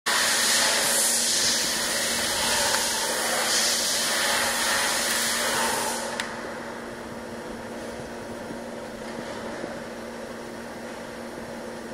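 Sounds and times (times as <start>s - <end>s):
welding arc hissing: 0.1s - 6.2s.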